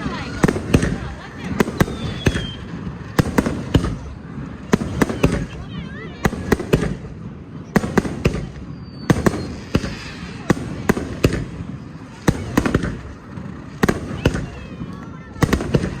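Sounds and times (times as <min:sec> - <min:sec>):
firework whistle: 0:00.0 - 0:03.1, 0:07.7 - 0:13.1
fireworks banging: 0:00.0 - 0:16.0.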